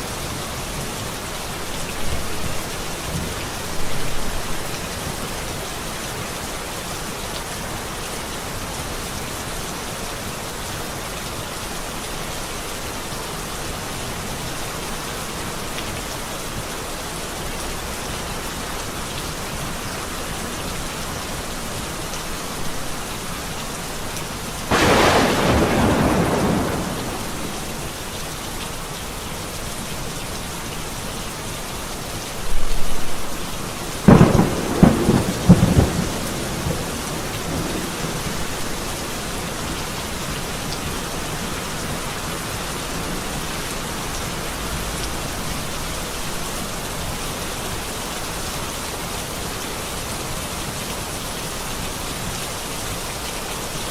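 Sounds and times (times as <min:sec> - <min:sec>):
steady rain falling: 0:00.0 - 0:53.9
thunder cracks: 0:24.7 - 0:28.0, 0:34.0 - 0:38.2.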